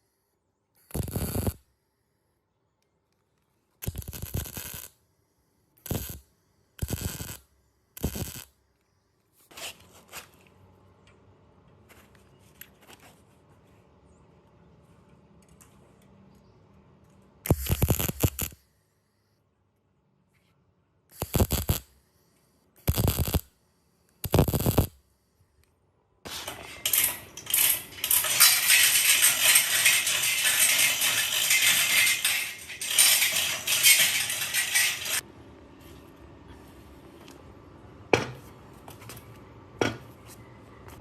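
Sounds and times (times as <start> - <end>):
metal clinking and scraping: 26.3 - 35.2.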